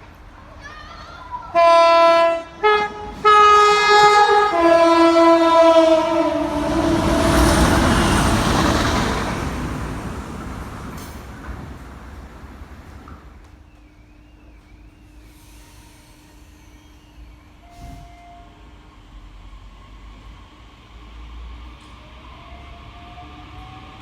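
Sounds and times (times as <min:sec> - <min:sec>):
rush of passing train: 0:00.0 - 0:24.0
train horn blasts: 0:01.5 - 0:09.1, 0:17.6 - 0:18.7.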